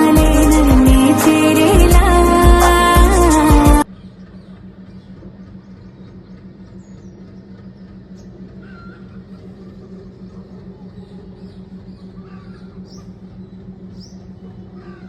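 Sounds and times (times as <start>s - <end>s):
low pulsing hum: 0.0s - 15.0s.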